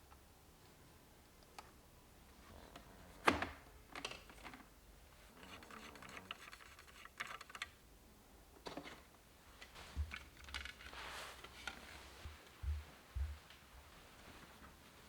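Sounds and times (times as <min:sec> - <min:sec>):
clicks and knocks of handling: 0:08.6 - 0:12.6
rustling or scraping: 0:09.6 - 0:15.0.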